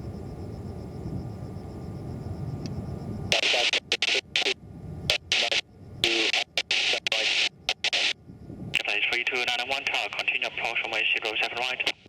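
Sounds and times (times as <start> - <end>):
low steady rumble: 0.0 - 3.4
radio static hiss: 3.3 - 8.2, 8.8 - 12.0.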